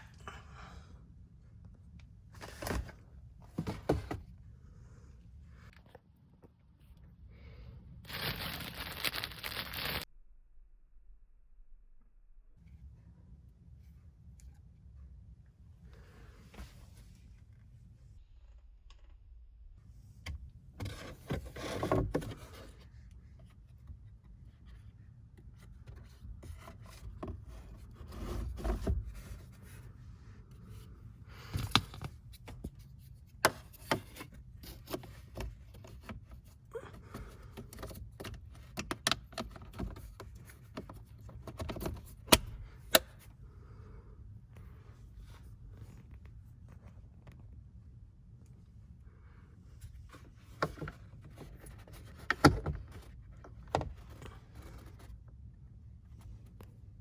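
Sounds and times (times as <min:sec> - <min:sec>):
plastic scraping and rubbing: 0:08.1 - 0:10.1, 0:20.8 - 0:23.0.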